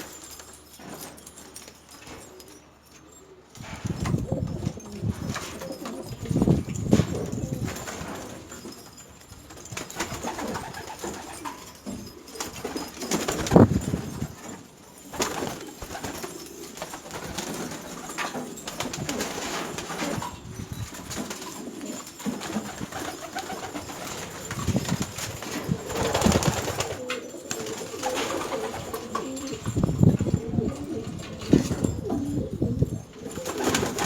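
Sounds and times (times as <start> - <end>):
pigeons cooing: 25.6 - 34.0.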